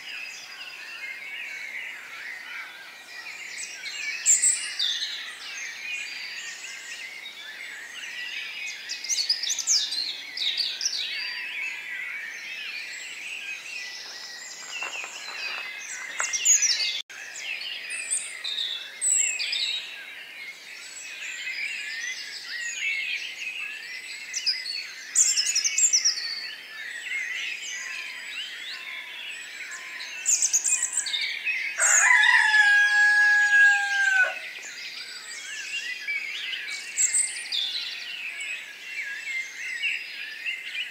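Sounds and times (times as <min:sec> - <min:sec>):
small birds chirping: 0:00.0 - 0:40.9
long held bird call: 0:31.8 - 0:34.5.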